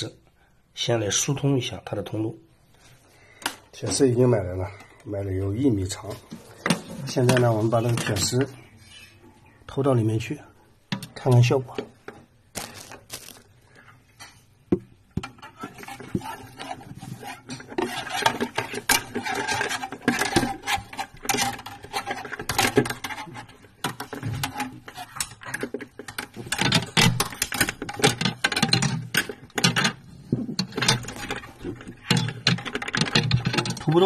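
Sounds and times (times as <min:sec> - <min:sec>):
wire scraping in plastic tube: 0:15.2 - 0:34.0.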